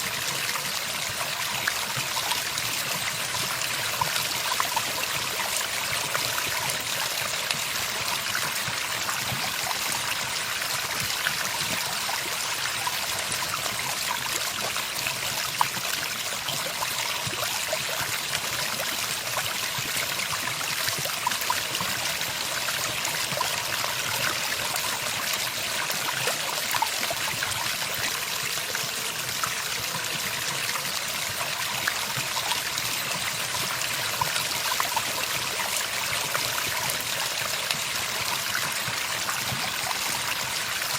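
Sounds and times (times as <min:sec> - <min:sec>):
water trickling and splashing: 0:00.0 - 0:40.9.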